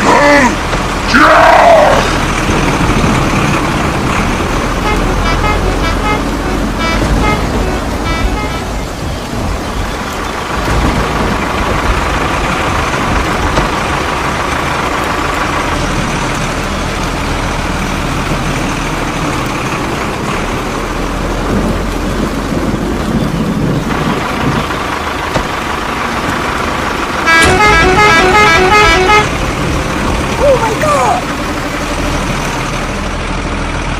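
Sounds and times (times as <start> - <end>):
truck engine rumbling: 0.0 - 33.9
horn tooting pitched notes: 4.8 - 8.9, 27.2 - 29.4.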